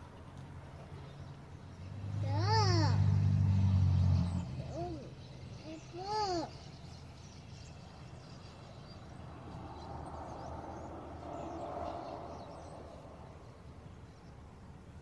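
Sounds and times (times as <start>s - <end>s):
vehicle passing: 0.0s - 15.0s
small birds chirping: 4.0s - 15.0s.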